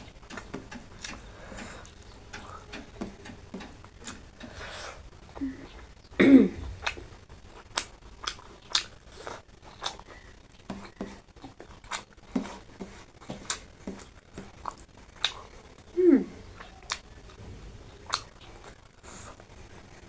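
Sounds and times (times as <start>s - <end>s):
chewing and mouth smacks: 6.6s - 17.4s.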